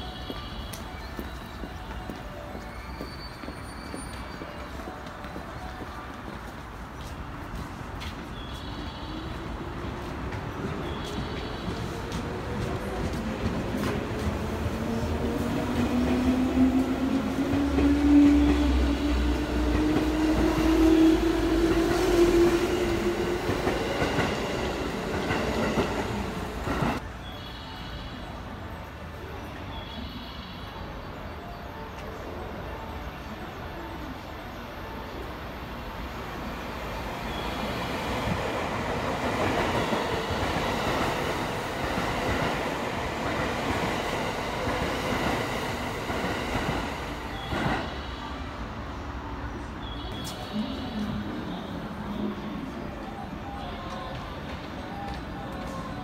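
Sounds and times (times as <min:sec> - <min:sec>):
rail rumble and wheel clicks: 0:00.1 - 0:27.2, 0:49.2 - 0:56.0.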